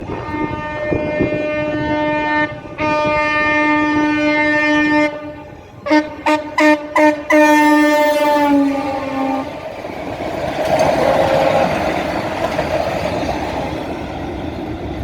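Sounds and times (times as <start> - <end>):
locomotive horn blasts: 0.1 - 9.6.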